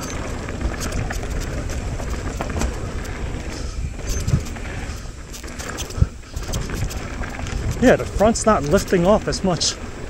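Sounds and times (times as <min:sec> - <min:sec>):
wind on microphone: 0:00.0 - 0:09.1
bike rattles and clicks: 0:00.0 - 0:10.0
bike tyre noise: 0:00.0 - 0:10.0.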